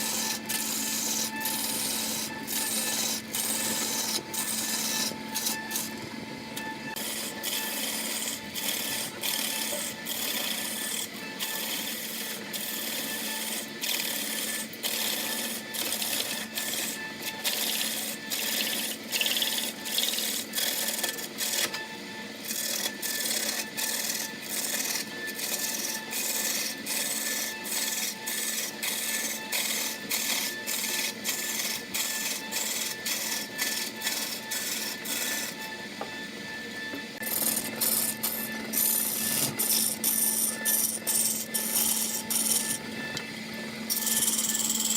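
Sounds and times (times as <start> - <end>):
steady machine hum: 0.0 - 12.9, 23.2 - 44.9
wood scraping on a lathe: 0.0 - 44.9.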